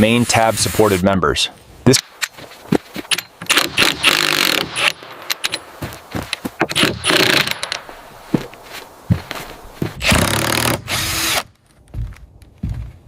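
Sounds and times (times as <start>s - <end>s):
knocks and clicks of building work: 1.9s - 13.0s
power drill running: 10.0s - 11.5s.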